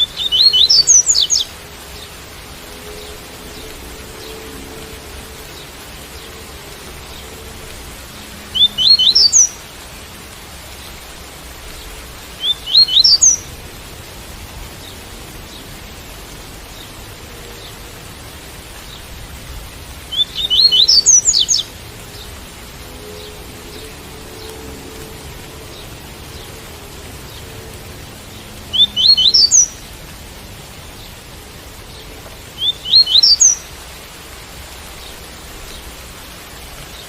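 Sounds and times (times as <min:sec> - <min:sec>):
bird singing rising notes: 0:00.0 - 0:07.7, 0:08.4 - 0:09.6, 0:12.4 - 0:13.5, 0:20.0 - 0:26.6, 0:28.7 - 0:29.8, 0:32.6 - 0:33.7
rain hiss: 0:00.0 - 0:37.0.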